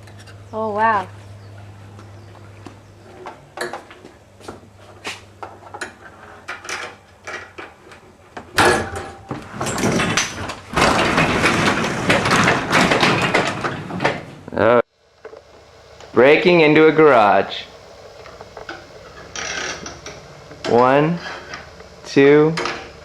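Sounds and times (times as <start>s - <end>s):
garage door scraping and rattling: 8.5s - 14.5s.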